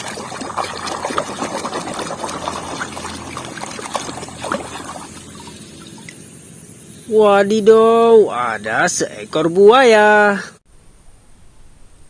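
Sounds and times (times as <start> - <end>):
water pouring and trickling: 0.0 - 6.3.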